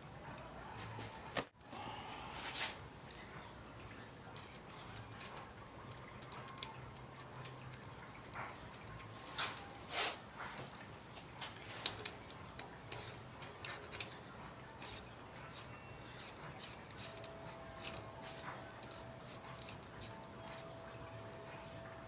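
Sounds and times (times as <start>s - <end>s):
metallic clicks of hand tools: 11.8s - 14.2s, 14.8s - 20.6s.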